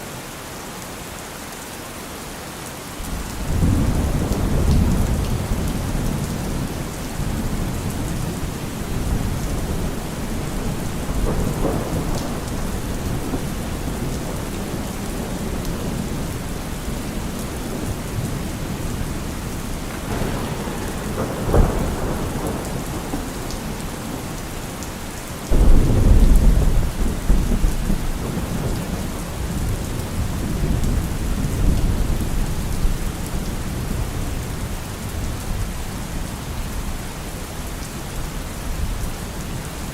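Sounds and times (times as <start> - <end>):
steady rain falling: 0.0 - 39.9
thunder rumbling: 3.1 - 36.8
sharp thunder crack: 3.2 - 16.4, 17.6 - 24.7, 25.5 - 32.2.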